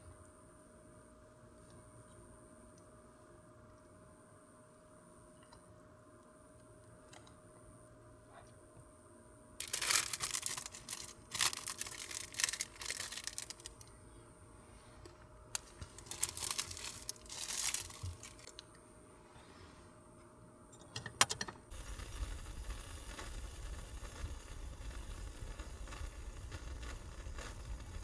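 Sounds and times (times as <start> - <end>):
packaging crinkled and torn open: 9.6 - 13.9, 15.5 - 18.6.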